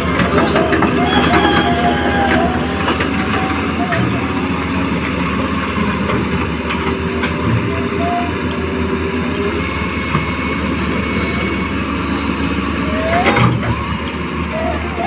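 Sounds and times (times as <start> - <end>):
toy excavator motors whirring: 0.0 - 5.6, 12.8 - 15.0.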